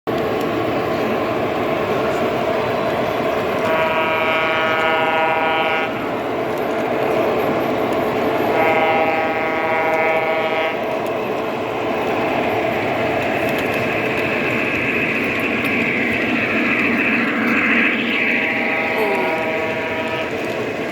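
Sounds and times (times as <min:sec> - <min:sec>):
model train running noise: 0:00.1 - 0:20.9
model train electronic horn: 0:03.6 - 0:06.0, 0:08.5 - 0:10.9, 0:18.4 - 0:20.6.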